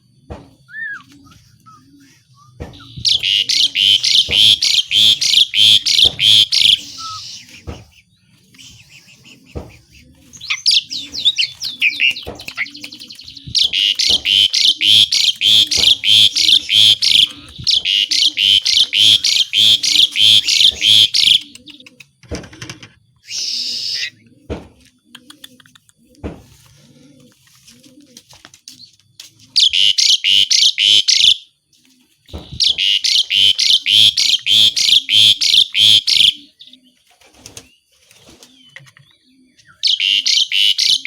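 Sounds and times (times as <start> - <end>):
starling whistled warbled phrases: 0.7 - 21.9, 23.2 - 24.2, 32.6 - 36.5, 39.8 - 41.0
starling singing harsh notes: 0.8 - 21.8, 23.2 - 24.2, 32.6 - 36.4.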